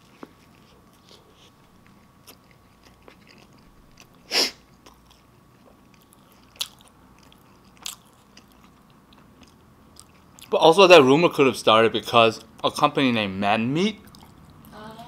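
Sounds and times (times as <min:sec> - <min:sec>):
person chewing with mouth closed: 0:00.0 - 0:10.5, 0:14.0 - 0:14.7.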